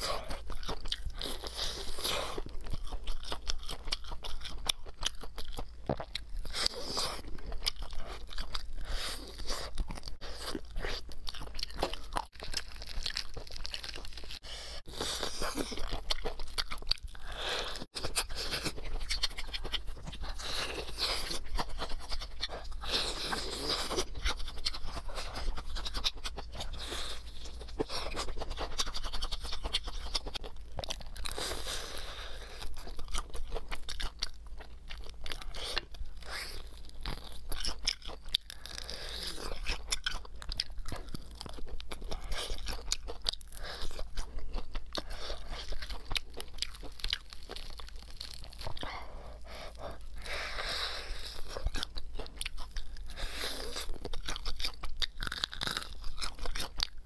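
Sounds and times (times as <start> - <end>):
chewing crispy fried chicken: 0.0 - 57.0.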